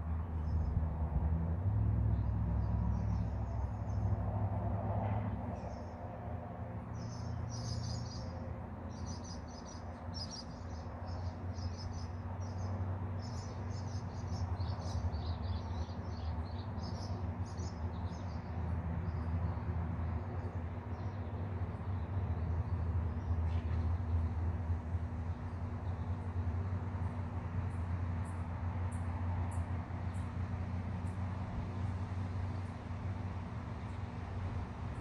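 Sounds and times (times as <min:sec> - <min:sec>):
birds chirping: 0:08.9 - 0:19.3.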